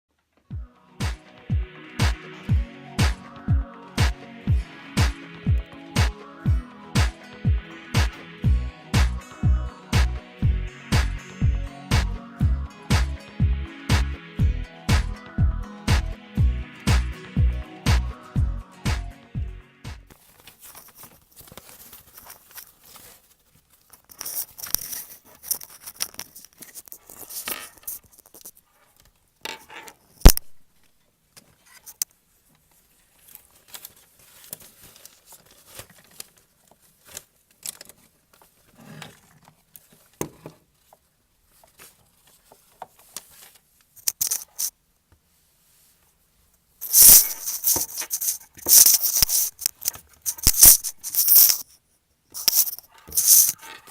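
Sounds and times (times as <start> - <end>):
ferret rustling and scratching: 20.1 - 28.9.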